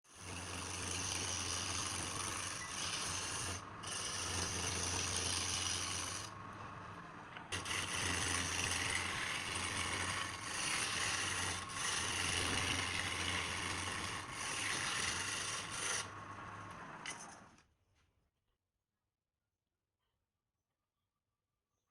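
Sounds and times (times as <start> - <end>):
hand tool rasping on spinning wood: 0.1 - 6.4, 7.5 - 17.3
wood lathe humming: 0.1 - 17.5.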